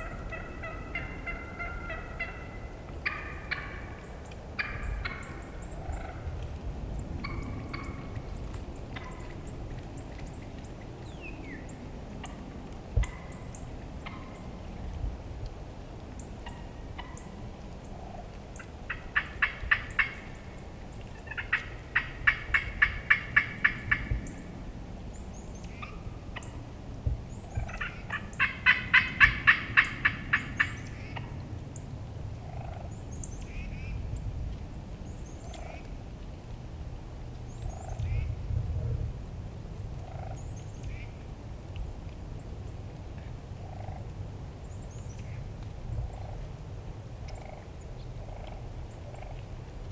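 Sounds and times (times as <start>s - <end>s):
turkey yelping: 0.0s - 3.9s, 27.7s - 30.4s.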